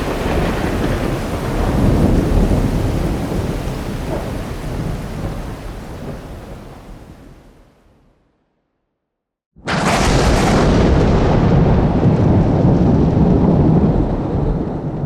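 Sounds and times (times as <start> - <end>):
rolling thunder: 0.0 - 7.4, 9.6 - 15.0
steady rain: 0.0 - 8.2, 9.7 - 15.0.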